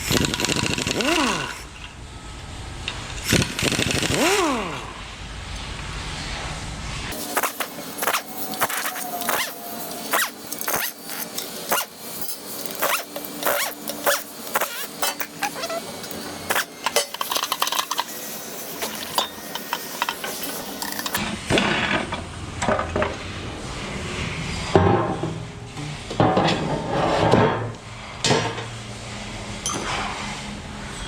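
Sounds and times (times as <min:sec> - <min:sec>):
fuller loud noise: 0:04.1 - 0:26.2
hand ratchet clicking: 0:07.1 - 0:18.1.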